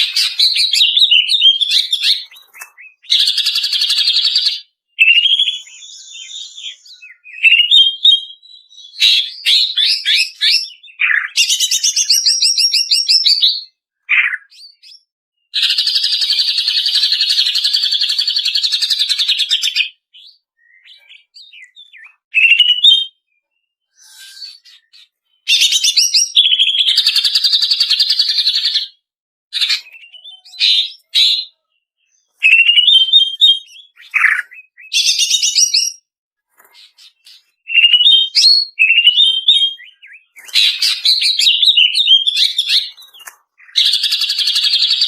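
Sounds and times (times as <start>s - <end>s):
bird whistled phrases: 0.0s - 23.2s, 23.8s - 28.9s, 29.6s - 36.0s, 37.7s - 45.0s.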